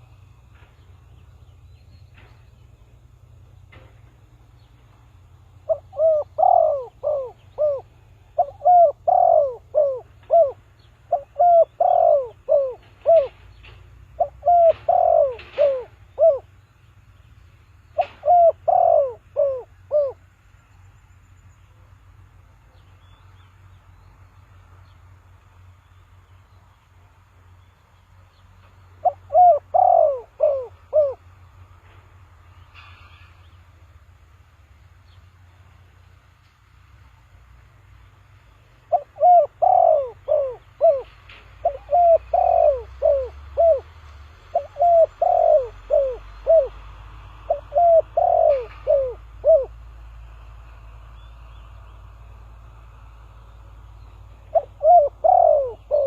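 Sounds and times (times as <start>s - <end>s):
dove cooing: 5.6s - 16.6s, 18.0s - 20.2s, 29.0s - 31.6s, 38.8s - 49.9s, 54.3s - 56.0s.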